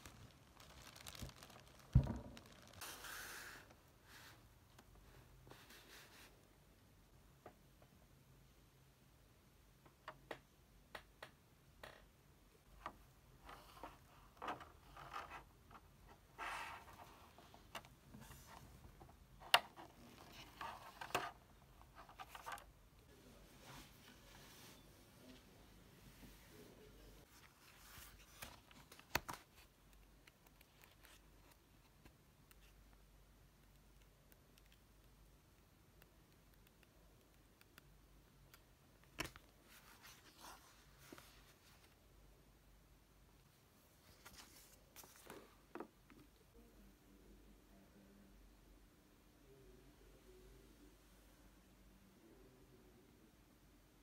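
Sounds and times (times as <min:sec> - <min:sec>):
soft rustling: 0:00.0 - 0:06.4, 0:13.3 - 0:29.8, 0:39.2 - 0:42.0, 0:43.4 - 0:46.3.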